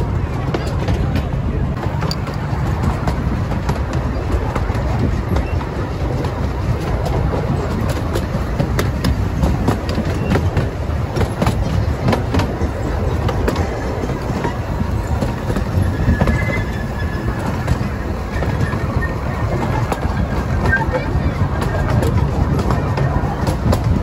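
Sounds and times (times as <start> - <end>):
train rumbling on rails: 0.0 - 24.0
faint high squeal: 15.8 - 17.6.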